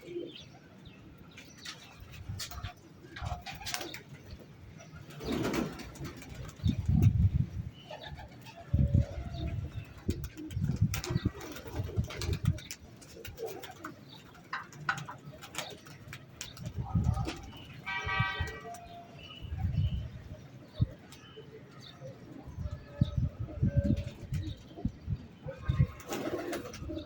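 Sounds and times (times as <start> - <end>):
pigeons cooing: 7.9 - 16.1, 21.8 - 27.0.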